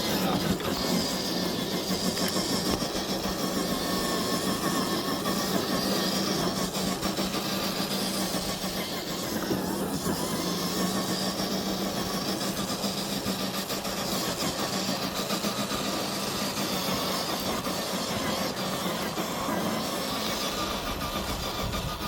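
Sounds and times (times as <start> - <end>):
small clicks and crackles: 0.0 - 22.0
toy truck electric motor whining: 0.0 - 22.0.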